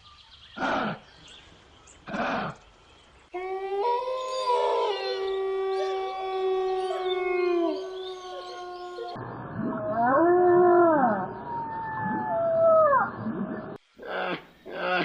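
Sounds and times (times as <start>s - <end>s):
dogs howling together: 3.4s - 12.9s.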